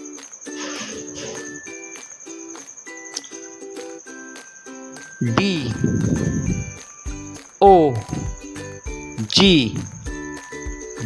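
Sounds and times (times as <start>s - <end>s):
light background music: 0.0s - 11.0s
steady high tone: 5.2s - 6.8s, 7.6s - 8.4s, 9.2s - 10.1s.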